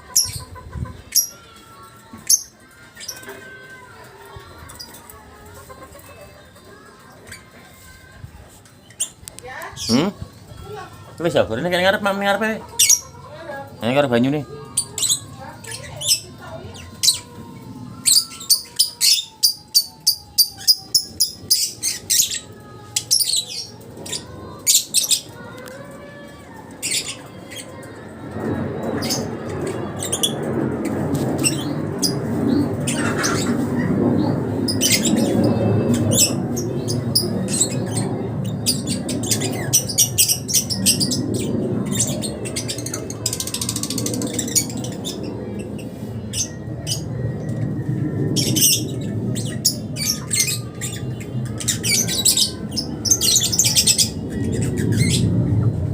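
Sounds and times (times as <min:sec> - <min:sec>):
steady rushing noise: 0:28.0 - 0:55.9.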